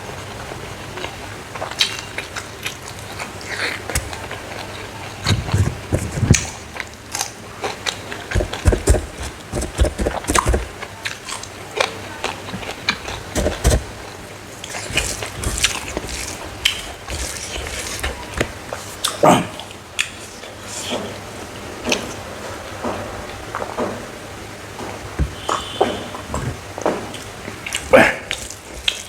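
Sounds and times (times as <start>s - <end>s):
person chewing crunchy food: 1.0s - 18.9s.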